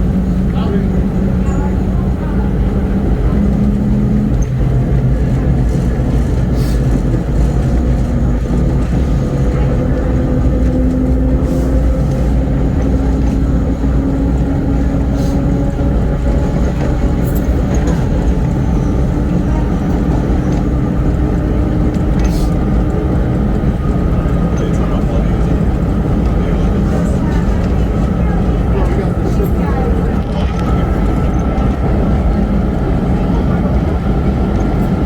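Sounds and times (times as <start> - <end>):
subway train wheels rumbling on rail: 0.0 - 35.0.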